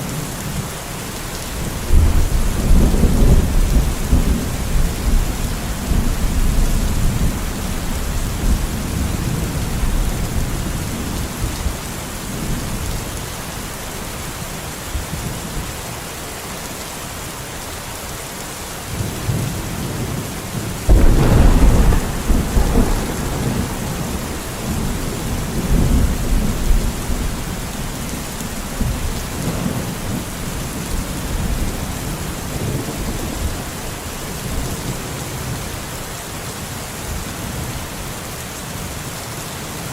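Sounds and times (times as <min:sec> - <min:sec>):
steady rain: 0:00.0 - 0:39.9
thunder rumbling: 0:01.6 - 0:11.8, 0:20.8 - 0:35.6
loud thunderclap: 0:20.9 - 0:31.9.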